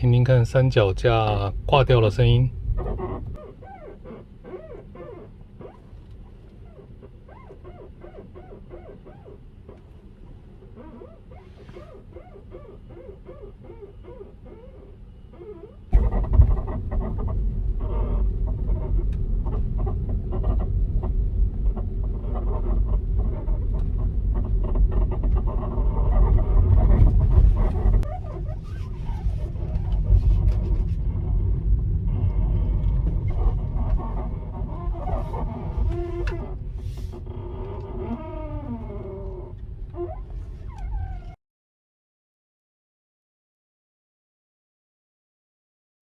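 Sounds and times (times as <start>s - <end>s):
low rumble: 0.0s - 3.4s, 15.9s - 41.4s
suspension creaking and squeaking: 0.0s - 41.4s.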